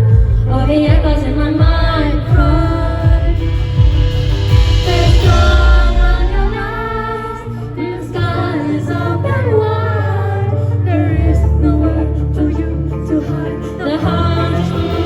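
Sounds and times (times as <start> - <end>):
live band music: 0.0 - 9.1
strong steady bass line: 0.0 - 9.8
woman singing: 0.0 - 15.0.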